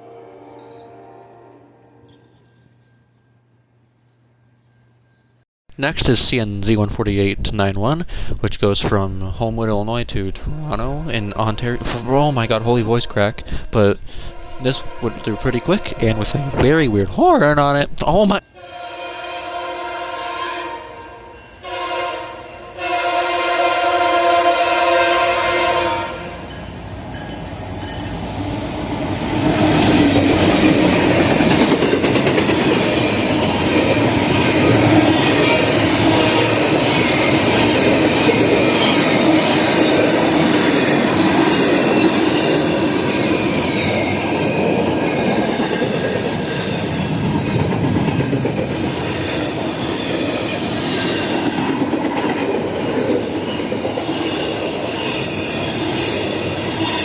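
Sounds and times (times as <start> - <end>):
train wheels clattering on rails: 27.2 - 57.0
high wheel squeal: 32.6 - 47.1, 53.2 - 57.0.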